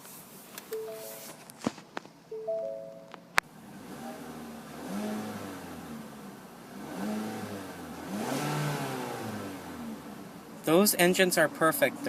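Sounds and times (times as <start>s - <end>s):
car engine revving: 3.5s - 12.0s.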